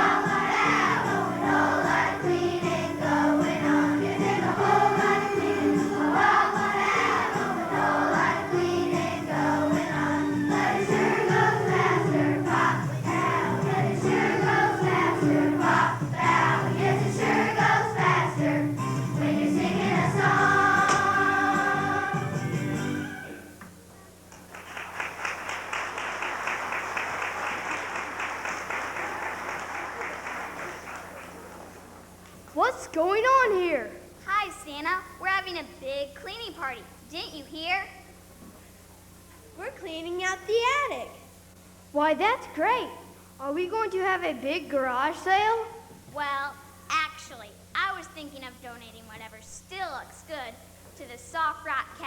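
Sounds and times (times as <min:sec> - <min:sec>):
children's choir singing: 0:00.0 - 0:23.4
musical accompaniment: 0:00.0 - 0:23.6.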